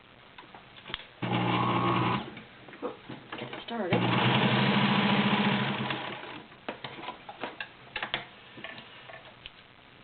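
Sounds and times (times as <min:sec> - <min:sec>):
sewing machine stitching leather: 0:01.2 - 0:02.3, 0:03.9 - 0:06.4.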